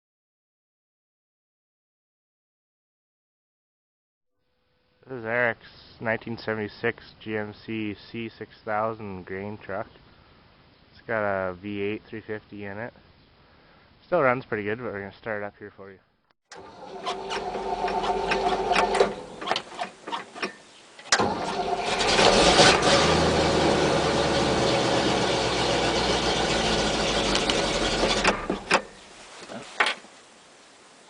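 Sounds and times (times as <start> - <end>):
truck engine starter cranking: 16.5 - 29.0.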